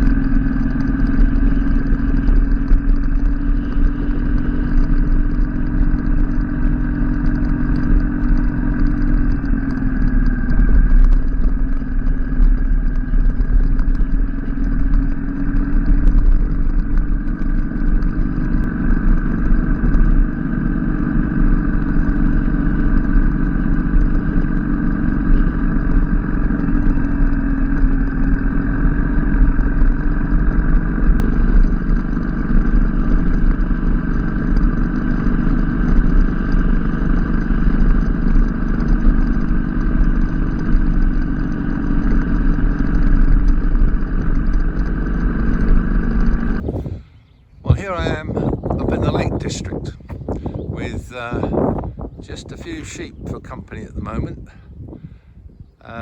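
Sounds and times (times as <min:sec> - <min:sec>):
motorcycle engine running: 0:00.0 - 0:56.0
road noise: 0:00.0 - 0:56.0
wind noise: 0:00.0 - 0:56.0.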